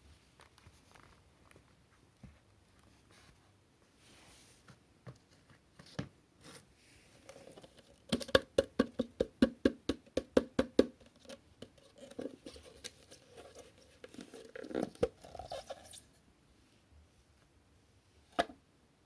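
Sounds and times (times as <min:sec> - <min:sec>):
small clicks and rustles: 0:00.2 - 0:03.3.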